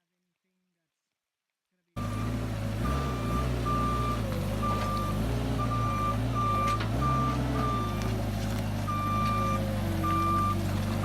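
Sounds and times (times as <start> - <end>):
backup alarm beeping: 2.0 - 8.1, 8.9 - 10.6
truck engine: 2.0 - 11.0.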